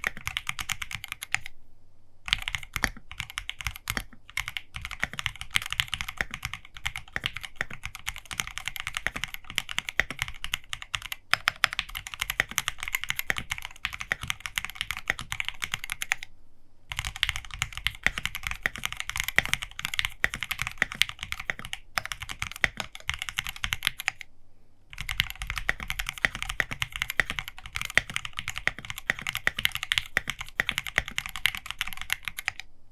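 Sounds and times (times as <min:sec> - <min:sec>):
fast mechanical keyboard typing: 0:00.0 - 0:01.5, 0:02.3 - 0:16.3, 0:16.9 - 0:24.3, 0:24.9 - 0:32.7.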